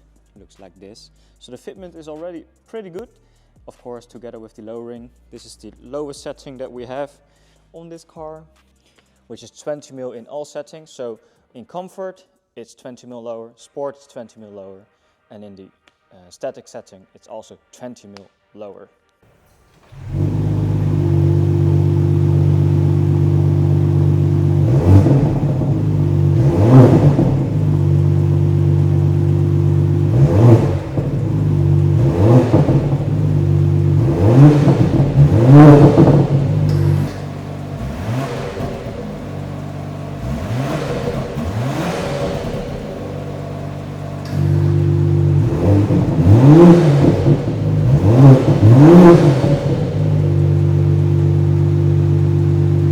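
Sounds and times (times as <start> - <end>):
car engine idling and revving: 19.8 - 52.9.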